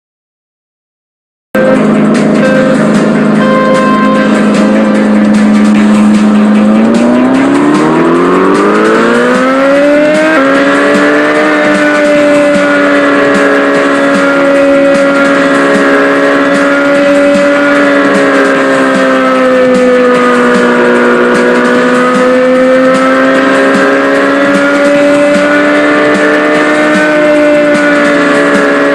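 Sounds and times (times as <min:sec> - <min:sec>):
small motorbike engine revving: 0:01.6 - 0:28.9.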